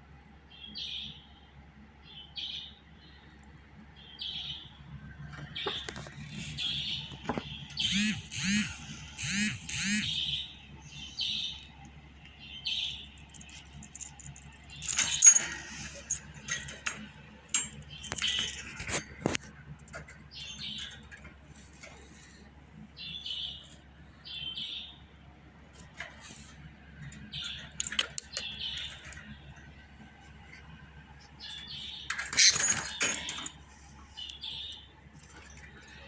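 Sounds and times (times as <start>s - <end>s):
sharp clicks: 7.8s - 10.2s, 27.6s - 29.2s
jingly rattles: 12.6s - 19.2s, 31.6s - 33.7s.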